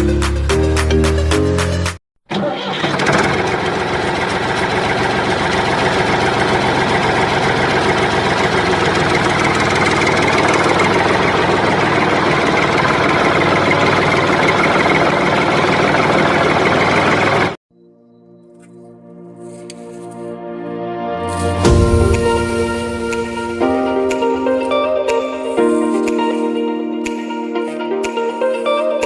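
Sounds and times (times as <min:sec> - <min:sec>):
engine starting and running: 0:02.2 - 0:17.6.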